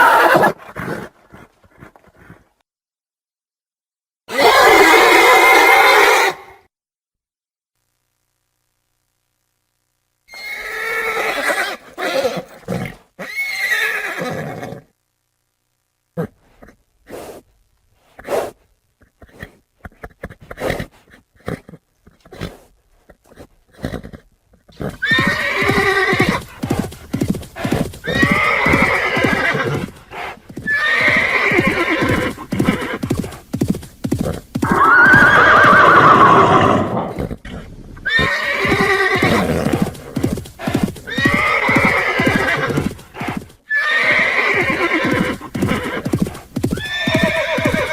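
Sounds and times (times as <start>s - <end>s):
horses neighing and whinnying: 0.0s - 2.4s, 10.3s - 14.8s, 23.3s - 47.9s
hoof clops: 23.0s - 35.8s, 38.6s - 43.6s, 45.0s - 47.9s.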